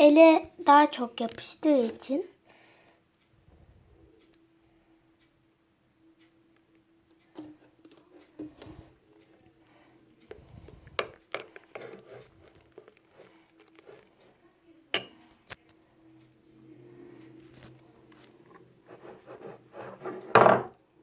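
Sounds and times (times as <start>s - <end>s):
spoon clinking against a bowl: 11.0s - 12.9s, 14.9s - 15.2s.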